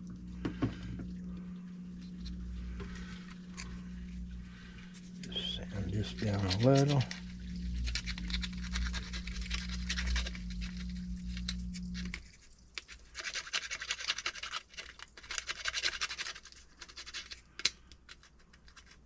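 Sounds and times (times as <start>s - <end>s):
low steady hum: 0.0s - 13.8s
sandpaper scratching plastic: 2.3s - 19.0s.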